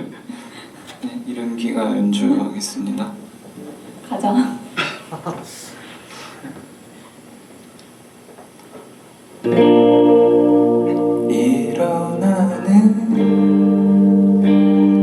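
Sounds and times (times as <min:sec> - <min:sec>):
guitar chords ringing: 0:09.4 - 0:15.0.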